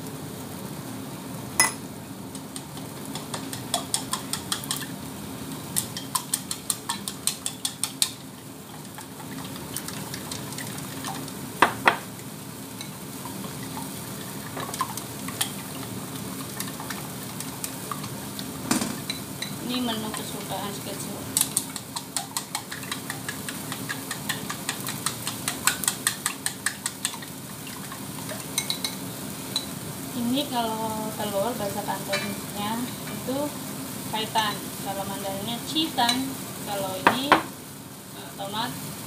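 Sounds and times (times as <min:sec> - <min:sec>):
tomatoes sizzling in oil: 0:00.0 - 0:39.0
chopsticks clicking against a bowl: 0:02.4 - 0:04.8, 0:05.8 - 0:08.2, 0:21.4 - 0:27.3.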